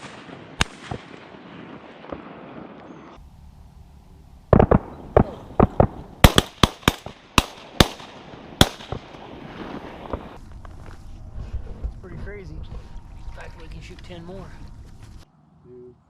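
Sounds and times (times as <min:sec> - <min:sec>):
shotgun fire volley: 0:00.0 - 0:02.7, 0:04.5 - 0:10.4.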